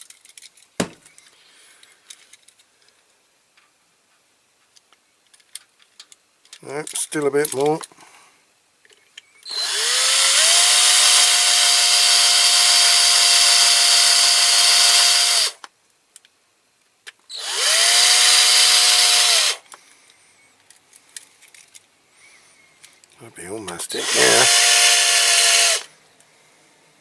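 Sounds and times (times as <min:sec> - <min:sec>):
electric drill drilling rivet: 0:09.4 - 0:15.6, 0:17.3 - 0:19.8, 0:23.7 - 0:25.9.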